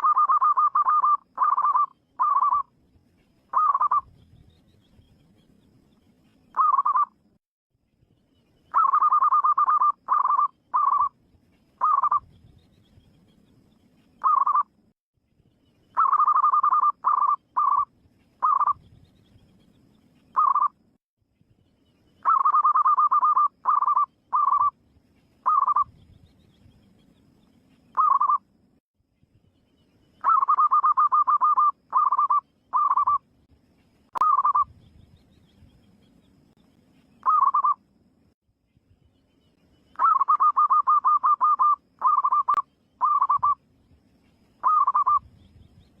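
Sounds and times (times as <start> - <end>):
dove cooing: 0.0 - 2.6, 3.5 - 4.0, 8.7 - 11.1, 11.8 - 12.2, 16.0 - 18.8, 22.2 - 24.7, 25.4 - 25.9, 30.2 - 33.2, 34.2 - 34.7, 37.2 - 37.8, 40.0 - 43.6, 44.6 - 45.2.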